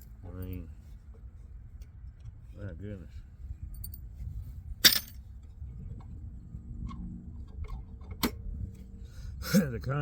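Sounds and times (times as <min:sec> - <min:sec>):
sharp knocks of metal parts: 0:04.8 - 0:05.2.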